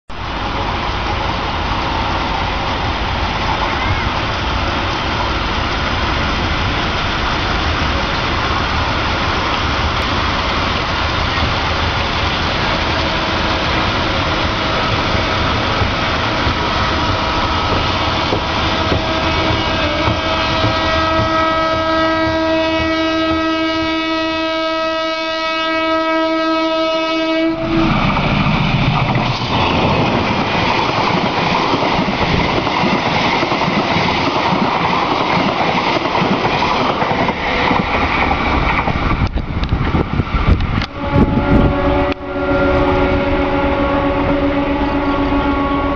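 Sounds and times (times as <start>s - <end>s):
train rumbling and rail clatter: 0.1s - 45.9s
locomotive horn blast: 12.9s - 15.1s, 16.2s - 28.1s, 40.8s - 45.9s.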